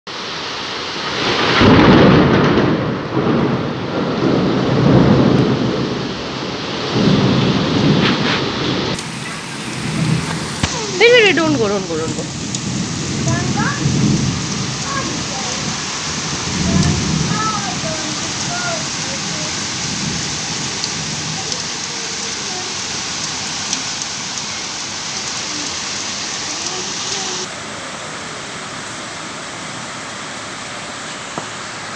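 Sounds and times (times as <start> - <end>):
heavy rain falling: 0.1 - 31.9
deep rumbles: 2.0 - 21.7
raindrops ticking close by: 2.4 - 8.0, 8.6 - 27.6.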